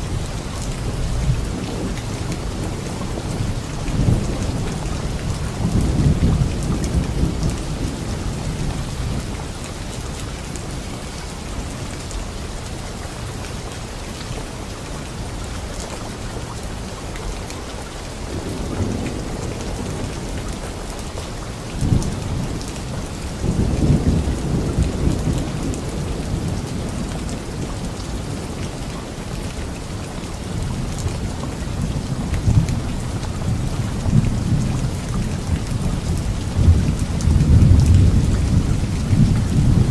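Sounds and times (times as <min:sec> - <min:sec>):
steady rain: 0:00.0 - 0:39.9
thunder rumbling: 0:31.5 - 0:39.9.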